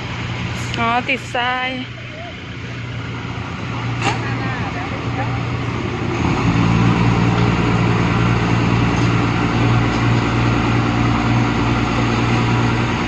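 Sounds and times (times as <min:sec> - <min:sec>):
truck diesel engine revving hard: 0:02.8 - 0:13.0.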